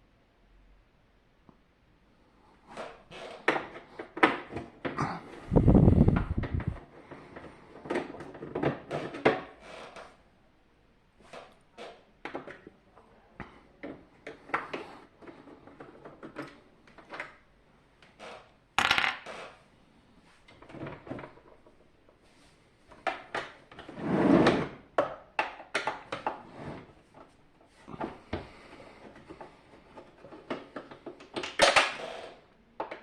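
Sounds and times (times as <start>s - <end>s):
small parts and tools clattering: 18.8s - 19.6s.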